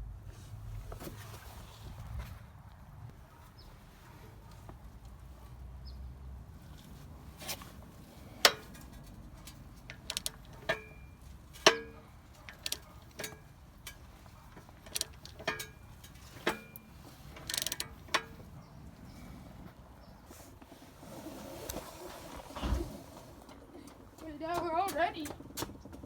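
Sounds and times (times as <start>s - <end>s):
metal tools clinking: 8.4s - 18.6s.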